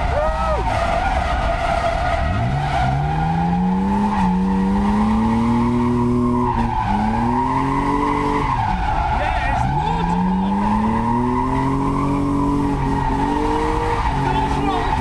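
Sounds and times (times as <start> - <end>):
car engine revving hard: 0.0 - 15.0.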